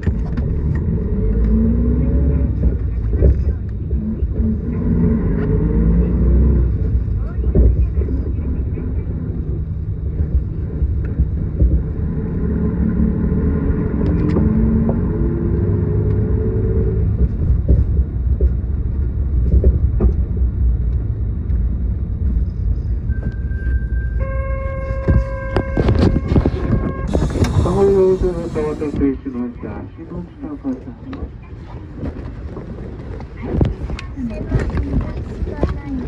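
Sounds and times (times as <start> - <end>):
bus diesel engine running: 27.1 - 29.1.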